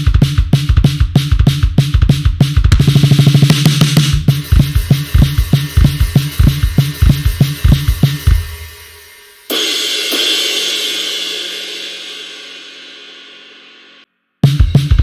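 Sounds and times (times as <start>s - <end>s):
drum groove with kick and snare: 0.0s - 15.0s
cymbal ringing: 4.3s - 14.0s.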